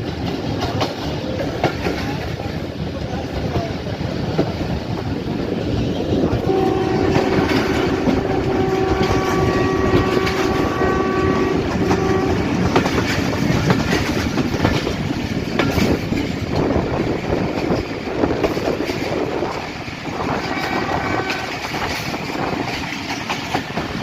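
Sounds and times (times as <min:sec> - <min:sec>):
train rumbling on rails: 0:00.0 - 0:24.0
train horn blasts: 0:06.3 - 0:13.2, 0:20.2 - 0:22.1.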